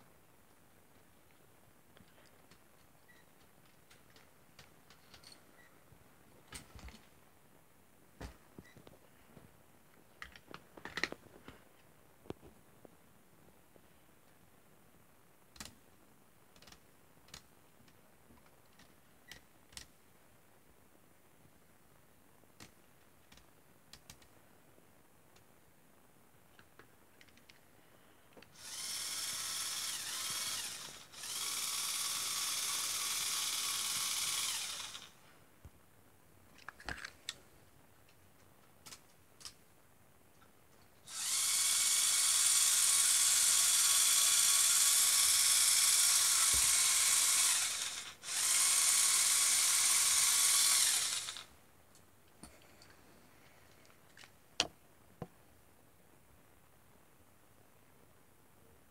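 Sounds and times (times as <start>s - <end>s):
toy motors and gears whirring: 28.6s - 35.2s, 41.1s - 51.5s.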